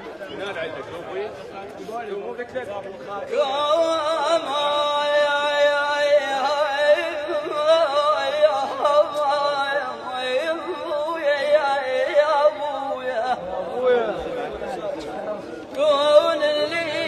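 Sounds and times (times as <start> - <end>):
person singing wordless melismatic melody: 15.6 - 17.0.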